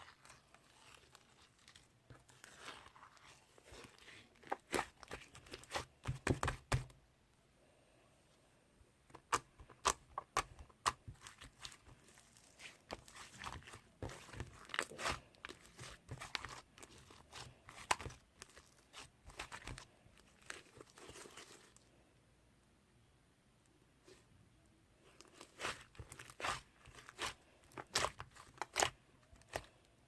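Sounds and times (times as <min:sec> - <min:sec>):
slime squished by hand: 0:09.2 - 0:21.8, 0:25.2 - 0:29.8.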